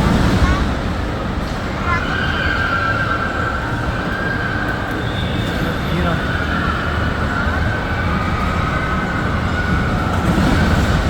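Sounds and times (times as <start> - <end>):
continuous high squeal: 0.0 - 11.0
ride machinery rumbling: 0.0 - 11.0.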